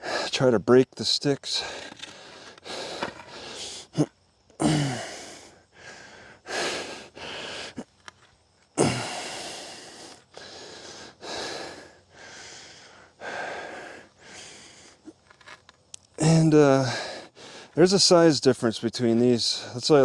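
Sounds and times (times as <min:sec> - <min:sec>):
man breathing hard: 0:00.0 - 0:00.4, 0:01.6 - 0:08.0, 0:08.8 - 0:15.2, 0:16.8 - 0:17.8
man grunting: 0:04.0 - 0:05.2, 0:08.8 - 0:09.2.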